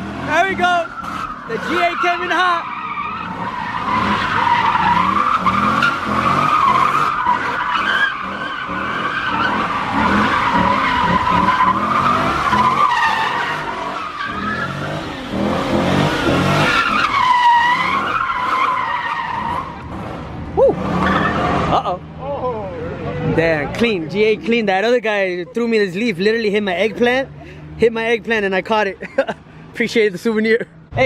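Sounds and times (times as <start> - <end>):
car engine revving: 0.0 - 24.5
tyres squealing: 0.2 - 20.0.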